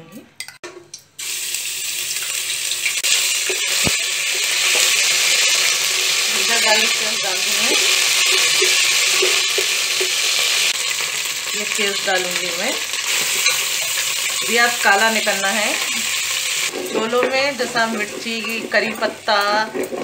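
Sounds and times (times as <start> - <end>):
paste sizzling in hot fat: 1.2 - 20.0
wooden spoon stirring: 13.3 - 20.0.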